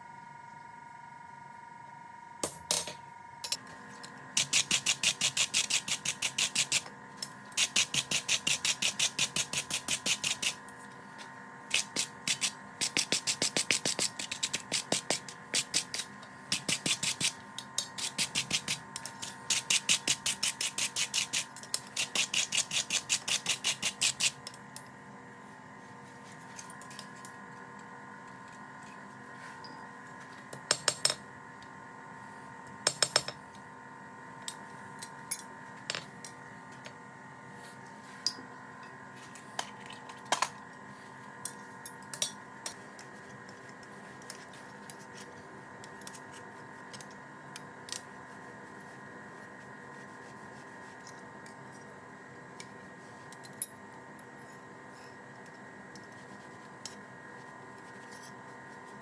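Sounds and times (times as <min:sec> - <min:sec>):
steady hum: 0:00.0 - 0:59.0
tools and parts clicking: 0:02.4 - 0:10.6.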